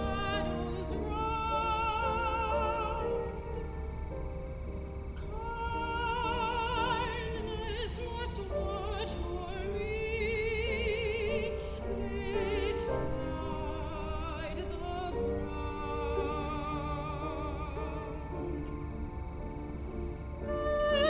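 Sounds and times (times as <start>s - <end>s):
piano accompaniment: 0.0s - 21.0s
soprano singing with vibrato: 0.0s - 21.0s.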